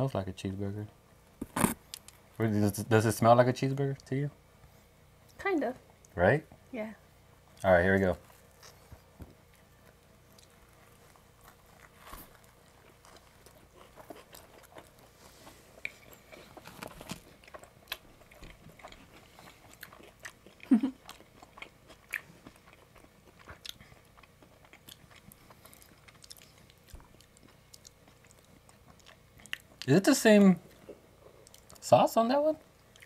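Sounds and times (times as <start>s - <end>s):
people chewing pizza: 7.3s - 33.0s
pizza crust crunching: 9.6s - 29.9s.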